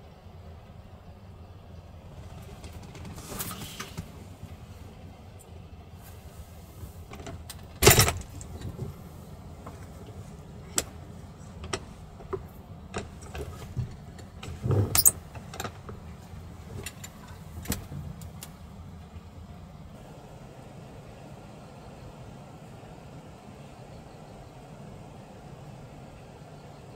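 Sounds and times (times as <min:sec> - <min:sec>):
steady low rumble: 0:00.0 - 0:26.9
small clicks and knocks of handling: 0:11.6 - 0:16.0.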